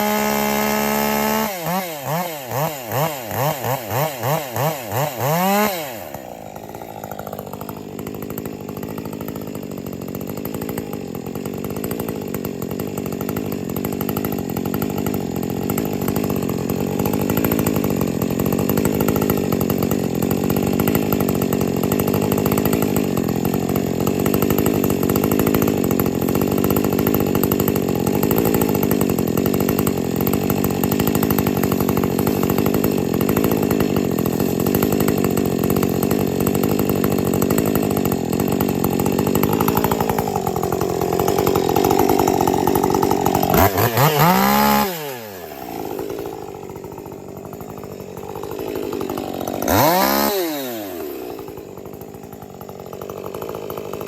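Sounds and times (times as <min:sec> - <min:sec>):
chainsaw cutting wood: 0:00.0 - 0:54.0
chainsaw revving and idling: 0:00.0 - 0:54.0.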